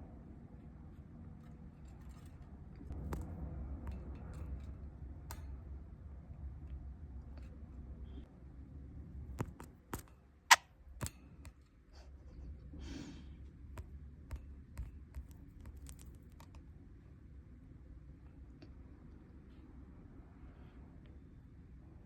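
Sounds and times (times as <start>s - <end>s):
budgies pecking at a phone: 13.8s - 16.5s.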